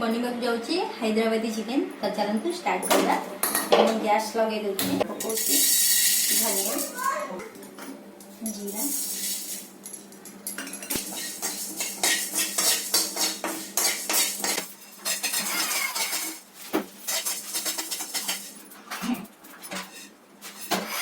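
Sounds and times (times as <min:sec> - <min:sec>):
metal spoon clinking in pan: 0:08.5 - 0:16.4, 0:17.1 - 0:18.6.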